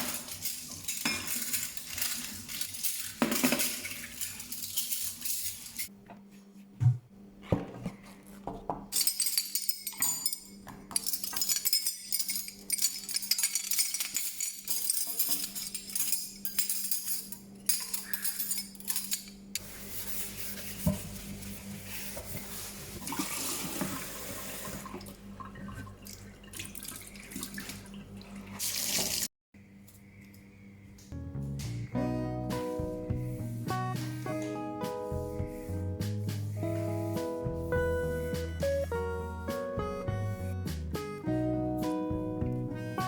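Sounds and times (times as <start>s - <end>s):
knocks and clinks of items: 0.0s - 5.8s
tap water running into sink: 23.0s - 29.3s.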